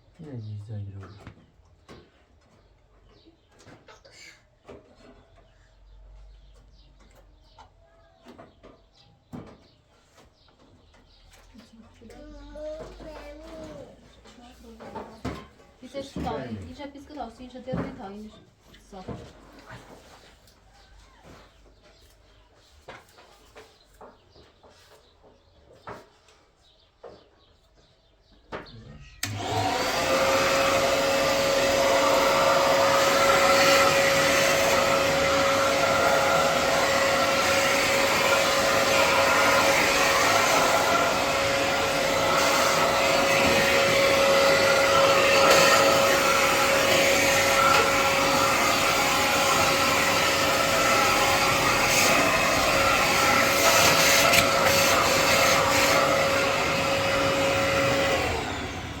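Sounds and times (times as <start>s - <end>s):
electric motor whining: 29.2s - 59.0s.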